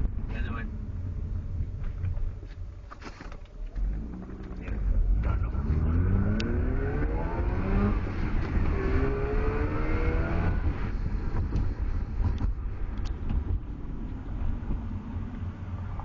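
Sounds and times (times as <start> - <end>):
road and engine rumble: 0.0 - 16.0
rotary engine revving: 3.8 - 11.0.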